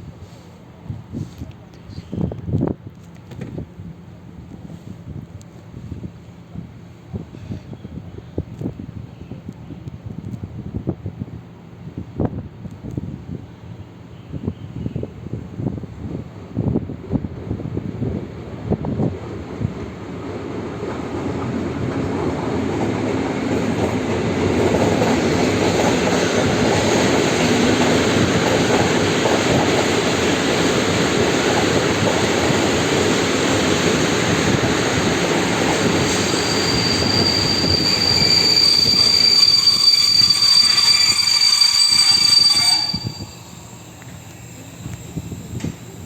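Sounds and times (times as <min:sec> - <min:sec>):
train wheels rumbling on track: 0:00.0 - 0:46.0
high steady brake squeal: 0:35.8 - 0:46.0.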